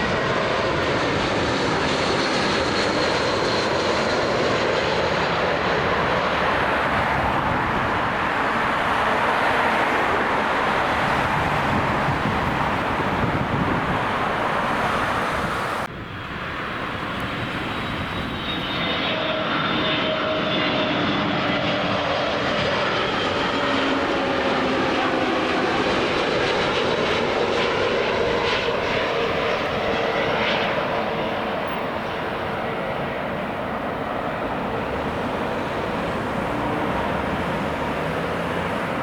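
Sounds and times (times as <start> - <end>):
jet engines whining: 0.0 - 39.0.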